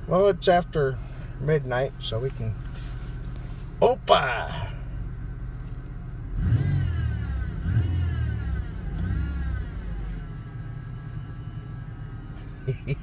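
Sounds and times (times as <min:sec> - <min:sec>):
vehicle engine idling and revving: 0:00.0 - 0:13.0.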